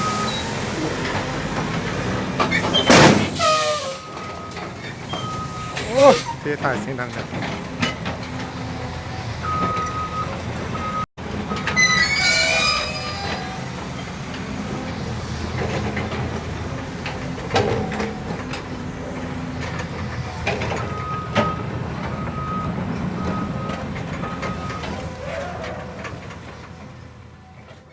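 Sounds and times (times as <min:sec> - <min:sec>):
diesel truck engine rumble: 0:00.0 - 0:27.9
beeping alarm: 0:04.0 - 0:06.2, 0:09.4 - 0:12.0
high metallic squeal: 0:11.7 - 0:13.8.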